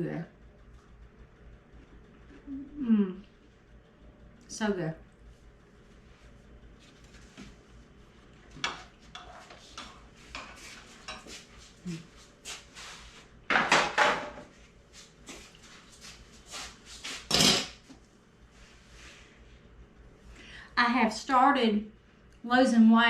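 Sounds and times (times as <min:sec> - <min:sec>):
dishes clattering: 0:13.5 - 0:14.5, 0:17.3 - 0:17.8.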